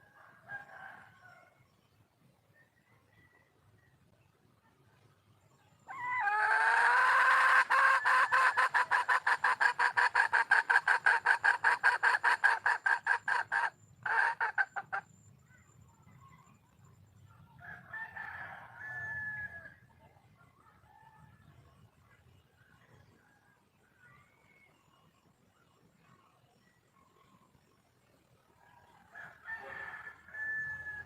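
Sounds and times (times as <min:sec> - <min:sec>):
hen clucking: 0:05.9 - 0:15.1.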